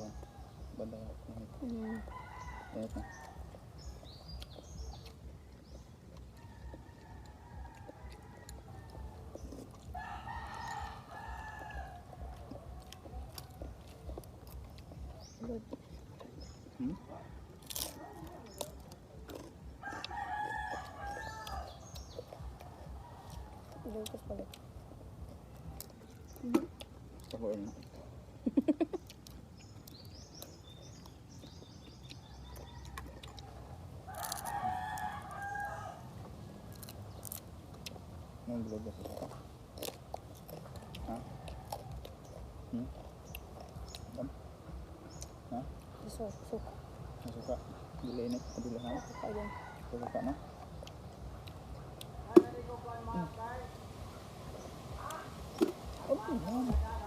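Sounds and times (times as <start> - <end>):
rooster crowing: 1.8 - 3.6, 6.4 - 13.7, 19.8 - 24.1, 32.3 - 36.9, 48.9 - 50.4.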